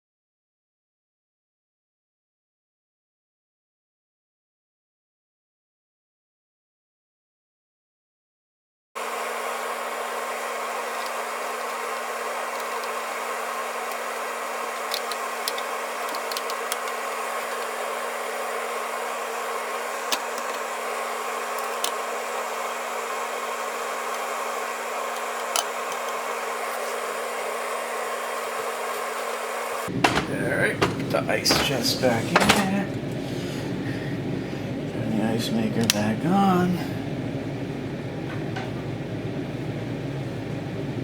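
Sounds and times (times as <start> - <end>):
fan whirring: 9.0 - 41.0.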